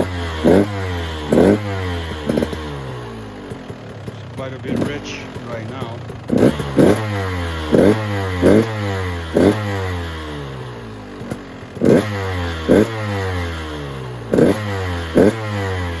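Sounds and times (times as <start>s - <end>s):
two-stroke engine revving: 0.0s - 16.0s.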